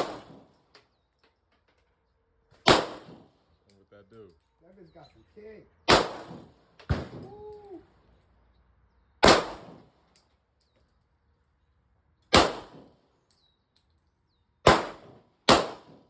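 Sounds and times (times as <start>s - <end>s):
pistol shots: 0.0s - 0.5s, 2.6s - 3.3s, 5.9s - 7.3s, 9.2s - 9.9s, 12.3s - 12.9s, 14.6s - 16.0s
man whooping: 7.2s - 7.9s.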